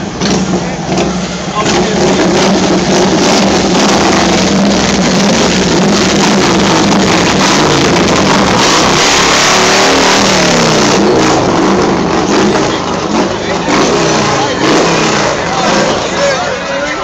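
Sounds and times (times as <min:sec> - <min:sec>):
car engines in traffic: 0:00.0 - 0:17.0
engine revving: 0:00.0 - 0:17.0.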